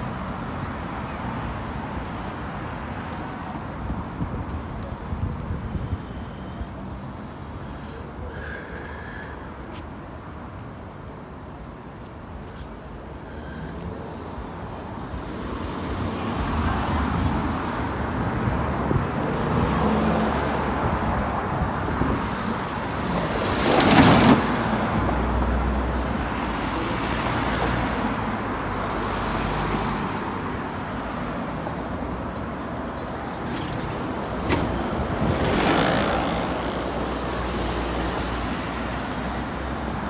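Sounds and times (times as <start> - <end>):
road traffic rumble: 0.0 - 40.0
vehicle passing close: 33.5 - 39.5.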